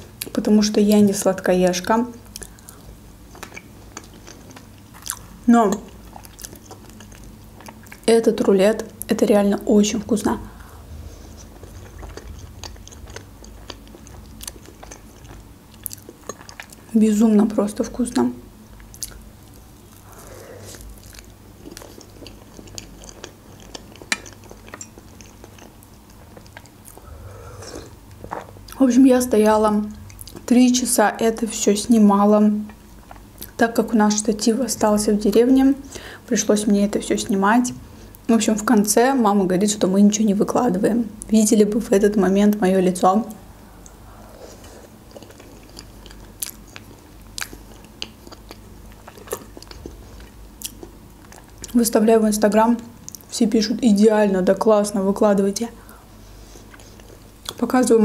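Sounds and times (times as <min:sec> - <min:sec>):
chewing soft food: 0:02.2 - 0:08.1, 0:10.4 - 0:16.9, 0:18.6 - 0:28.8, 0:29.9 - 0:30.6, 0:32.6 - 0:33.6, 0:43.3 - 0:51.9, 0:55.9 - 0:57.7
wet mouth sounds: 0:10.5 - 0:16.8, 0:18.8 - 0:28.8.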